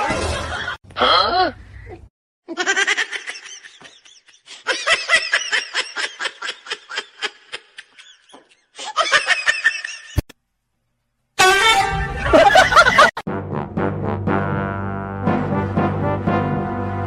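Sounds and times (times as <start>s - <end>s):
pulsing laughter: 12.1s - 13.2s.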